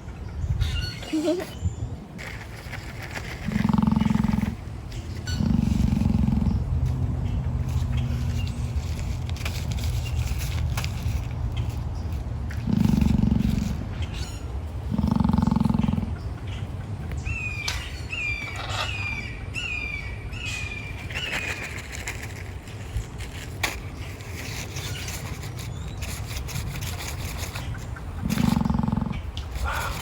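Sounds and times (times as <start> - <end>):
emu snorting calls: 3.3 - 8.6, 12.5 - 16.3, 24.6 - 30.0.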